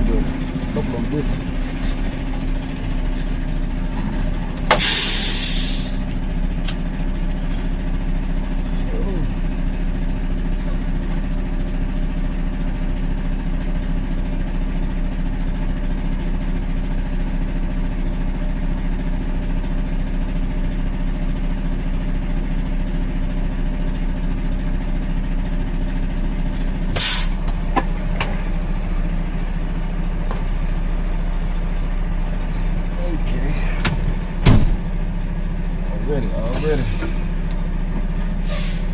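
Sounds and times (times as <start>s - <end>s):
truck diesel engine idling: 0.0s - 38.9s
loud air hiss: 4.8s - 6.0s.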